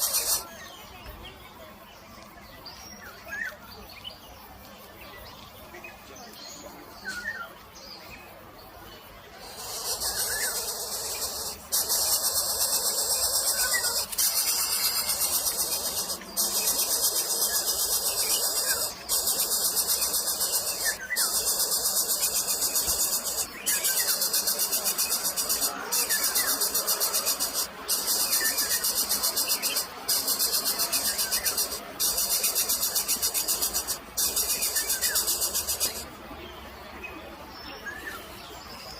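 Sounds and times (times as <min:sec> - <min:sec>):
shrill insect buzz: 0:00.0 - 0:00.6, 0:09.3 - 0:36.1
faint bird chirps: 0:00.0 - 0:38.9.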